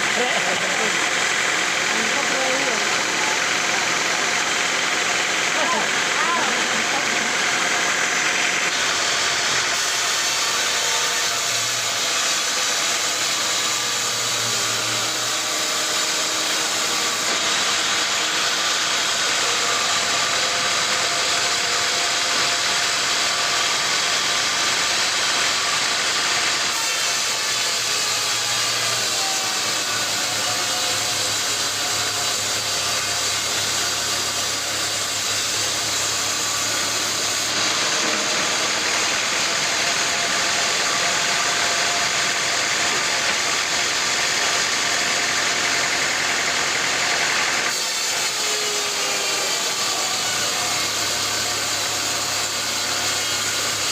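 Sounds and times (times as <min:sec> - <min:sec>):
sawmill machinery running: 0:00.0 - 0:53.9.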